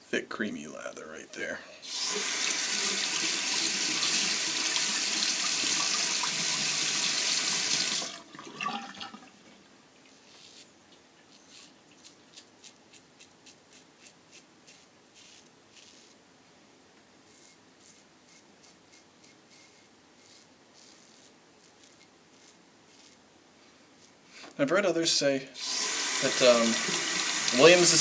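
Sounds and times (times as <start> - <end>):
razor scraping stubble: 10.2 - 16.2, 17.3 - 23.2, 24.0 - 24.2.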